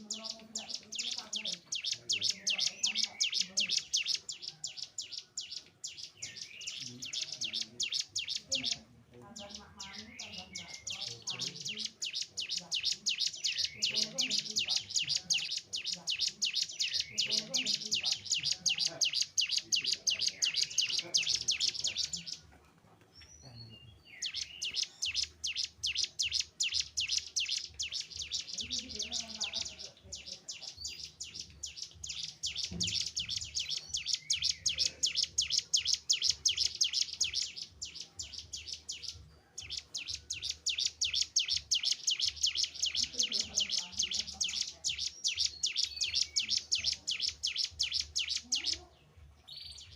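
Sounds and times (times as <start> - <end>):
bird singing sharp high notes: 9.4 - 22.4, 23.5 - 48.8.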